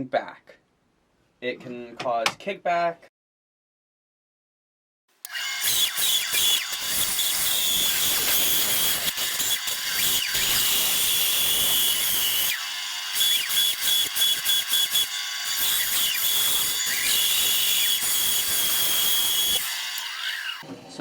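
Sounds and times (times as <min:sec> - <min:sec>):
bandsaw cutting wood: 0:05.2 - 0:20.6.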